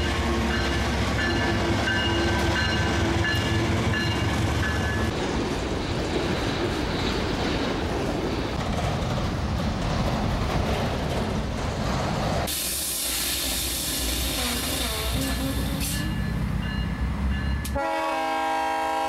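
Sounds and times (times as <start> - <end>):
train wheels rumbling on rail: 0.0 - 19.0
diesel locomotive hiss: 12.4 - 16.2.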